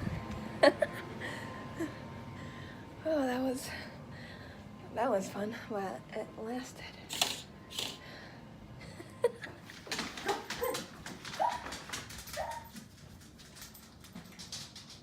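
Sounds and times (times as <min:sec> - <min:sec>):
light clicks and rustles: 0:09.7 - 0:15.0.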